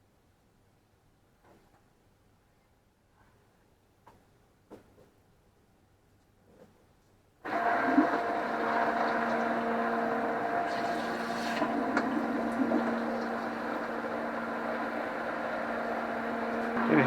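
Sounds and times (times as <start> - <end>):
electric pump humming: 7.5 - 17.0
water rushing through pump: 7.5 - 17.0.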